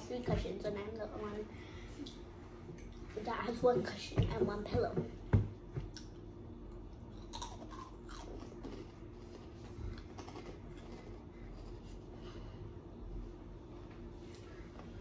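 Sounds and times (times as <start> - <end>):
chewing and crunching food: 6.7 - 12.5.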